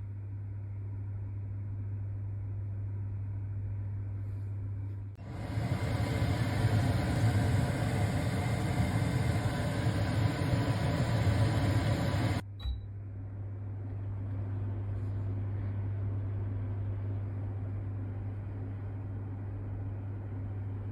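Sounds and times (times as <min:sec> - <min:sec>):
quieter range hood fan: 0:00.0 - 0:20.9
range hood fan rushing air: 0:04.1 - 0:12.5
click and beep: 0:12.6 - 0:12.9.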